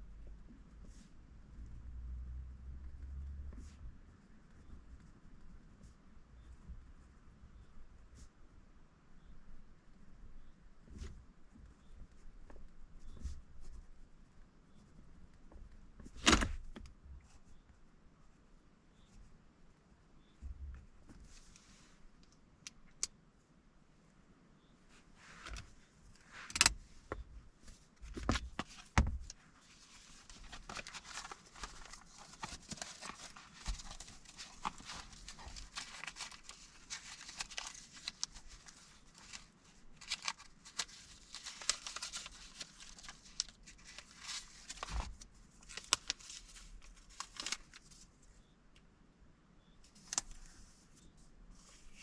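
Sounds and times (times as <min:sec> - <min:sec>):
paper rustling and crinkling: 0:27.6 - 0:48.1.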